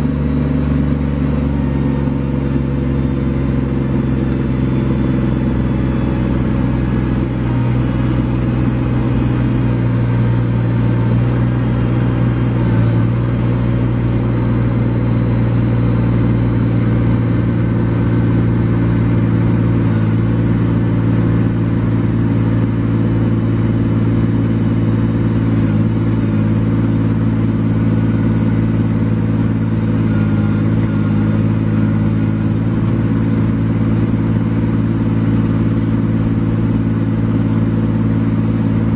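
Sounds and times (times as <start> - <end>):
diesel tractor engine running: 0.0 - 38.9.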